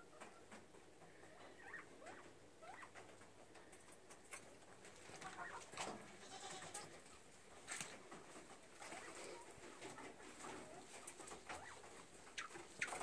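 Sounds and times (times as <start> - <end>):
small birds chirping: 6.4 - 13.0.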